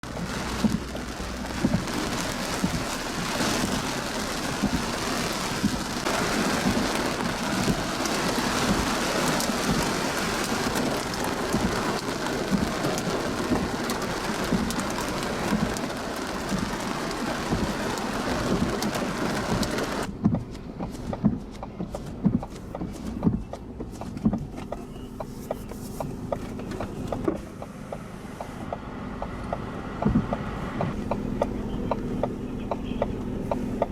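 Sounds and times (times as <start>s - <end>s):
heavy rain roaring: 0.0s - 20.1s.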